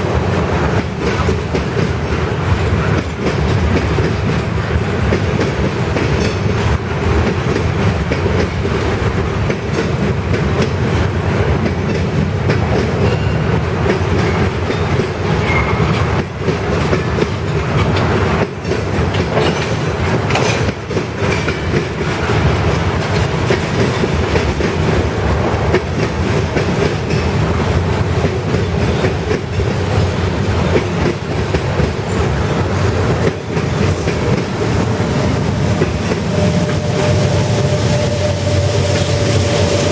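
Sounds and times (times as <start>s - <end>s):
train wheels rumbling on rails: 0.0s - 39.9s
wheels clicking over rail joints: 0.4s - 25.1s.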